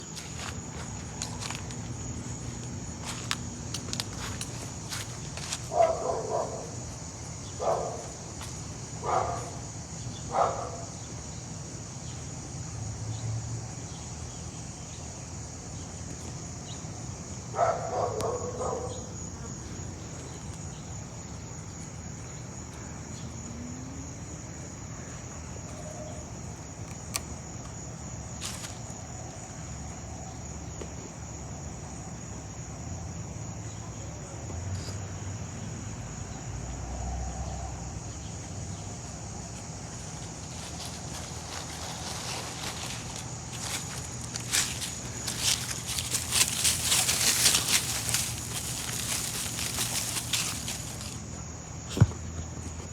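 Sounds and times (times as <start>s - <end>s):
high-pitched insect chorus: 0.0s - 52.9s
dog barking: 5.7s - 6.8s, 7.6s - 8.1s, 9.0s - 9.6s, 10.3s - 10.9s, 17.6s - 19.1s.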